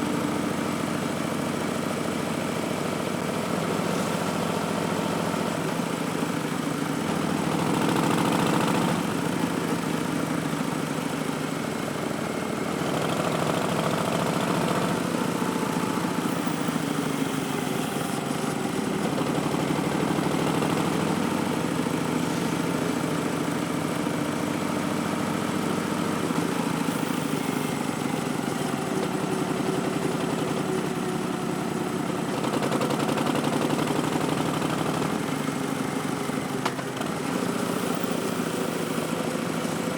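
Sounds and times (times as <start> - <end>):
motorcycle engine revving: 7.0 - 10.8, 12.5 - 39.8.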